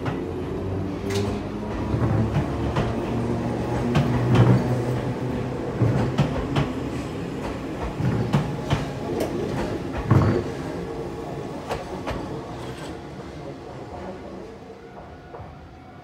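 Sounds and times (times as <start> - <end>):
electric train running hum: 0.0 - 16.0.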